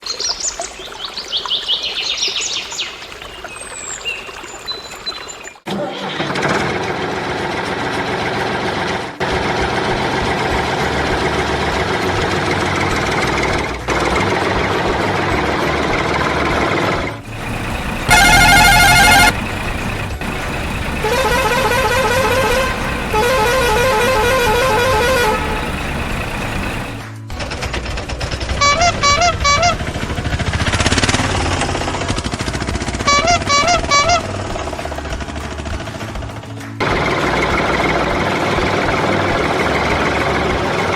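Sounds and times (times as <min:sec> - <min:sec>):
vehicle engine running: 0:06.3 - 0:40.9
loud horn blast: 0:17.3 - 0:27.1, 0:28.6 - 0:29.9, 0:33.1 - 0:34.3
warbling horn-like tones: 0:17.3 - 0:27.1, 0:28.6 - 0:29.8, 0:33.1 - 0:34.2
short honks: 0:18.0 - 0:19.4, 0:21.0 - 0:25.7, 0:28.6 - 0:29.8, 0:33.1 - 0:34.2.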